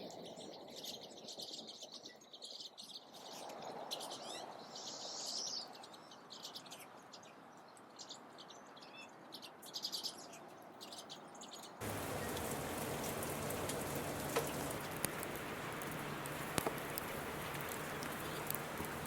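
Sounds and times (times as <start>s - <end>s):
songbirds chirping: 0.0s - 19.0s
patter of falling drops: 11.8s - 19.0s.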